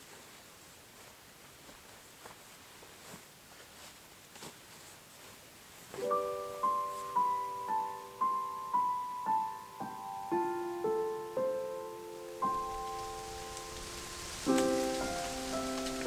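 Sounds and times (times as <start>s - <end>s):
slow piano melody: 6.0s - 16.0s.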